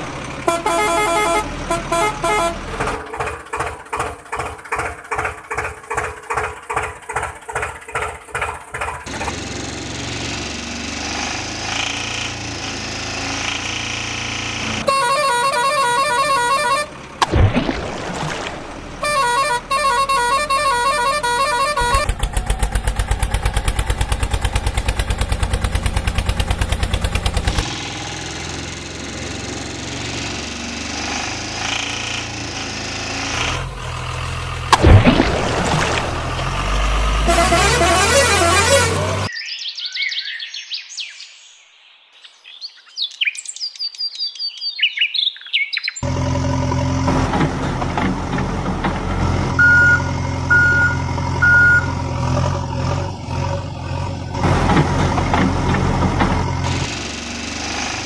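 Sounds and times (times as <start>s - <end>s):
truck engine running: 0.0s - 39.3s, 46.0s - 58.0s
short horn beeps: 0.5s - 2.7s, 14.8s - 16.9s, 19.0s - 22.1s, 37.2s - 39.3s, 49.6s - 52.0s.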